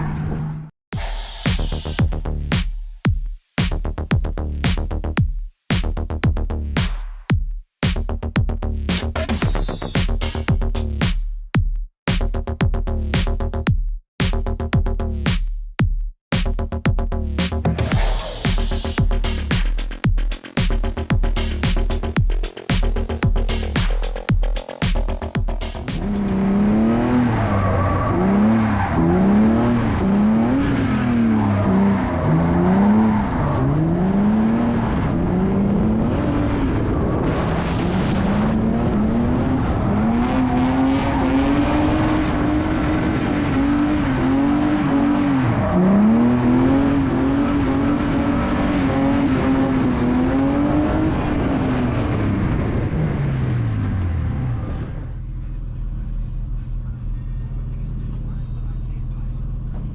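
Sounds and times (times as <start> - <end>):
car engine revving hard: 25.2 - 55.0.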